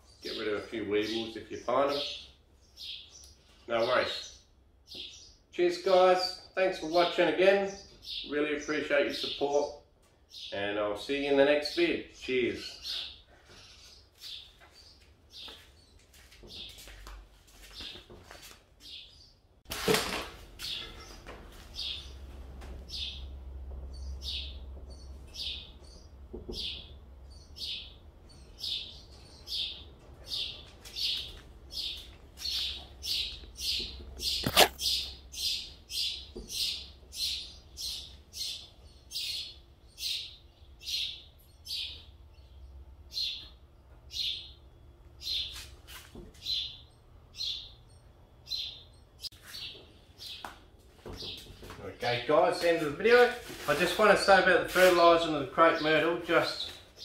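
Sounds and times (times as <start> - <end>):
bird chirping: 0.0 - 16.9, 20.6 - 45.6, 46.4 - 50.5
sharp click: 34.4 - 34.8.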